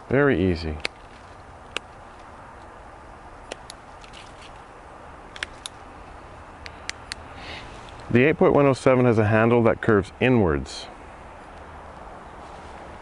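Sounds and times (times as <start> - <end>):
pruners snipping twigs: 0.7 - 2.7, 3.4 - 4.6, 5.3 - 5.8.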